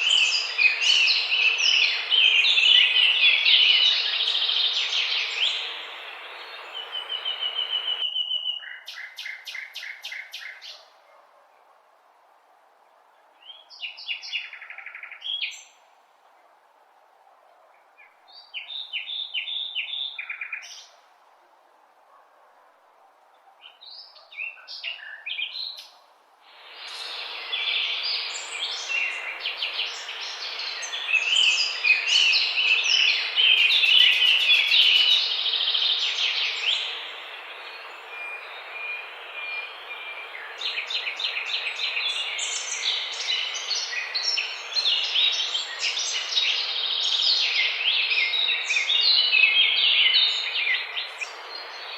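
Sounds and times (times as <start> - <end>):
birds chirping and trilling: 0.0 - 10.8, 26.5 - 51.9.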